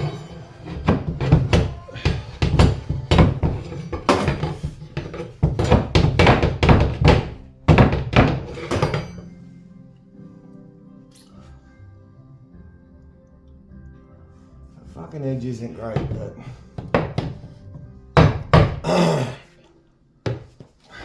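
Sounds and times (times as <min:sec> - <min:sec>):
background music: 0:00.0 - 0:21.0
sharp knocks on wood piece: 0:01.2 - 0:08.6.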